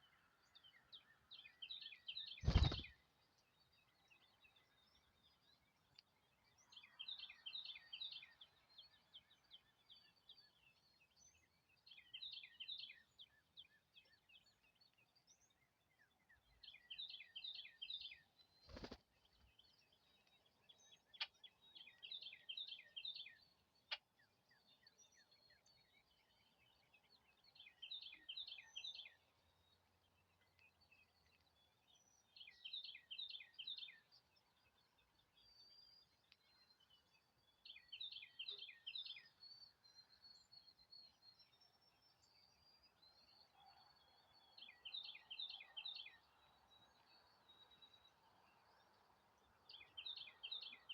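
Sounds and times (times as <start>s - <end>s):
songbird singing: 0.0s - 50.9s
faint ticks: 5.9s - 6.2s.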